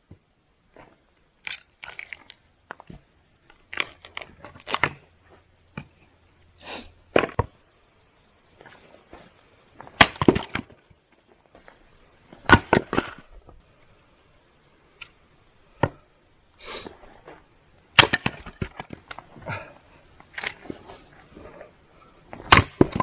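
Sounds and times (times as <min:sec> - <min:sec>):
wood cracking: 0:00.8 - 0:05.9, 0:09.8 - 0:10.9, 0:18.0 - 0:21.7, 0:22.3 - 0:23.0
axe striking wood: 0:10.0 - 0:10.7, 0:12.5 - 0:13.2, 0:18.0 - 0:18.9, 0:22.5 - 0:23.0.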